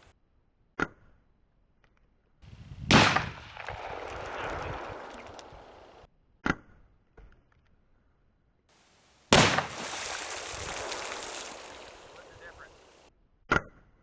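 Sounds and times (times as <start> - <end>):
gunshot echo: 2.8 - 5.8, 9.3 - 13.0
gunshots: 2.9 - 6.0, 9.3 - 13.0.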